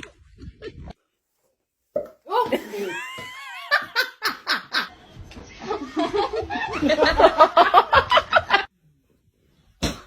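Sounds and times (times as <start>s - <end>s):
person laughing: 2.4s - 4.8s.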